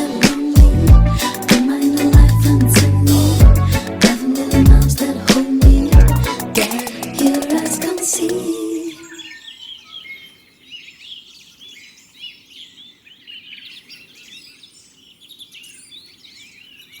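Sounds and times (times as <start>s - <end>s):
chorus of birds chirping: 6.8s - 17.0s.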